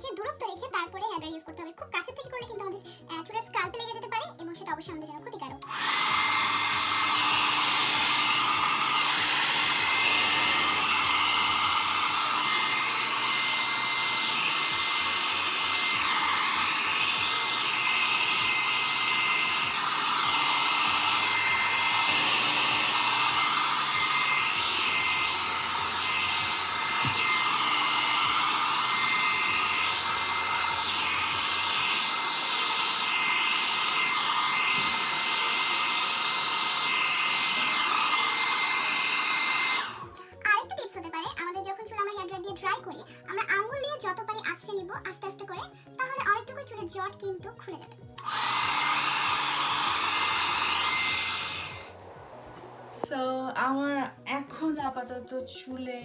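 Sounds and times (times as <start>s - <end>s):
hair dryer running: 5.6s - 40.3s, 48.1s - 53.2s.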